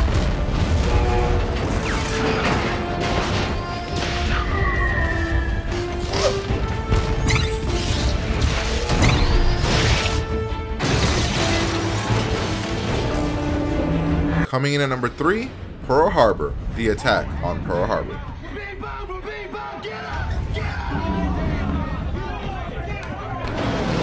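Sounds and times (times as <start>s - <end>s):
explosions: 0.0s - 5.4s, 6.0s - 13.7s, 23.4s - 24.0s
action film music score: 0.0s - 24.0s.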